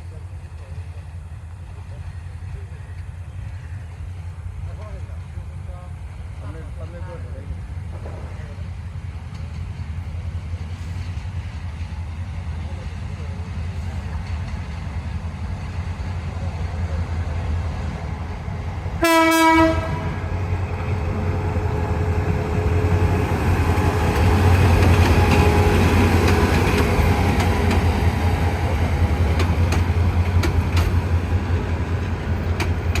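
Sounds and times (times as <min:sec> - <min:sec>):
train rumbling on rails: 0:00.0 - 0:33.0
train horn blast: 0:19.0 - 0:20.4
wheels clicking over rail joints: 0:23.7 - 0:33.0.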